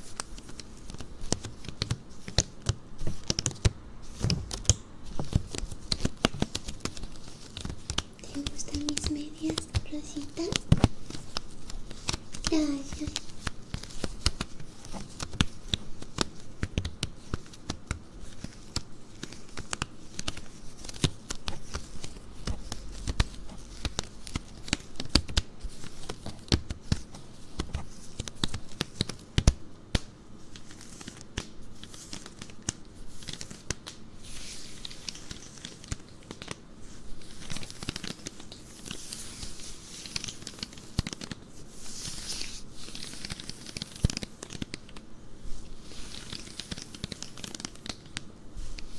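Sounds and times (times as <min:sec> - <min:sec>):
stockings scratching and rubbing: 0:36.9 - 0:44.8, 0:45.6 - 0:48.9.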